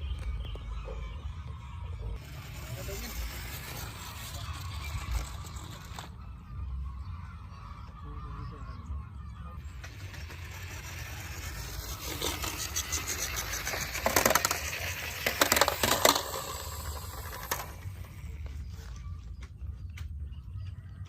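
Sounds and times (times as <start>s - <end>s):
steady low hum: 0.0s - 21.0s
toy vehicles scraping and clattering: 0.2s - 6.4s, 9.5s - 19.6s.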